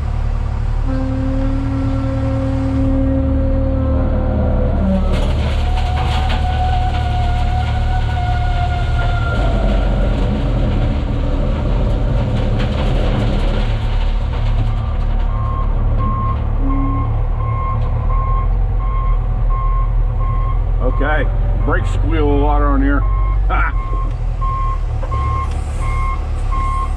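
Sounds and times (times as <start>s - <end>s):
loader diesel engine running: 0.0s - 26.9s
brake squeal: 0.8s - 10.2s, 22.9s - 26.9s
backup alarm beeping: 15.4s - 21.1s.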